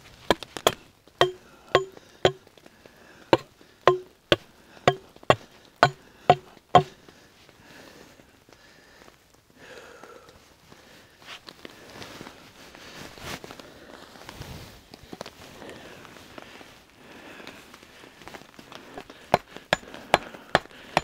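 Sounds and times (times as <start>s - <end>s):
tool knocking on wood: 0.7s - 2.4s, 3.4s - 6.9s
faint rustling: 10.3s - 21.0s.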